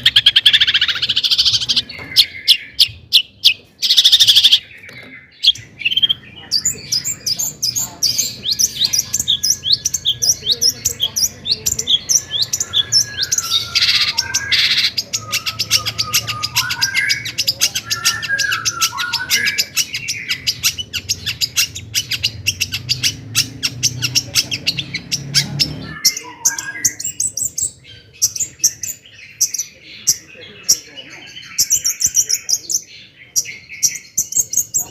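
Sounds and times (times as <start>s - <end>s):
shrike singing: 0.0s - 34.9s.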